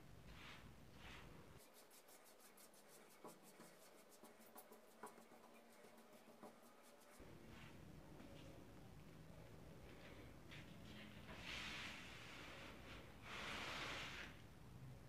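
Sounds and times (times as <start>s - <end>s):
quick scratching strokes: 0.4s - 7.2s.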